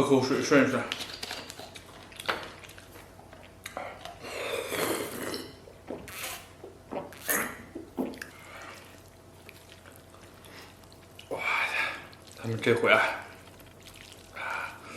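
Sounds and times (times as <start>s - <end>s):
breathing: 14.4s - 14.9s.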